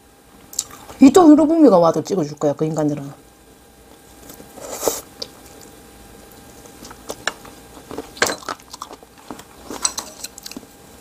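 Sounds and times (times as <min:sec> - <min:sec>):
person chewing with mouth smacks: 0:00.5 - 0:01.0, 0:07.8 - 0:10.7.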